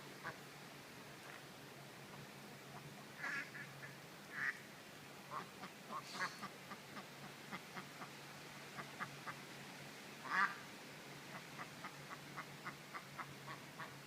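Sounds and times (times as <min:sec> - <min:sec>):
ducks quacking: 0:02.7 - 0:04.6, 0:05.3 - 0:08.1, 0:08.7 - 0:09.4, 0:10.2 - 0:10.6, 0:11.3 - 0:14.0.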